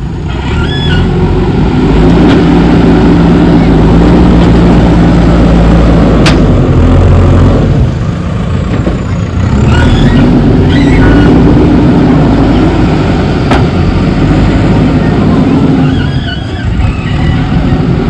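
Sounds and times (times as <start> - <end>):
diesel engine running under load: 0.0 - 18.0
faint high squeaks: 0.5 - 1.1, 9.6 - 11.6, 15.5 - 17.8.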